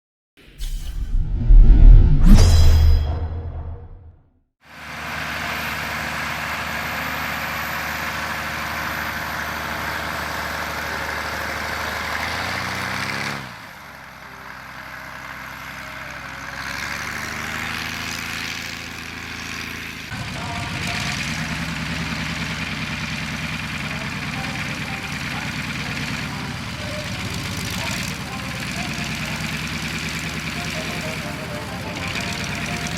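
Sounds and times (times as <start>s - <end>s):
aircraft piston engine running: 18.9s - 32.9s.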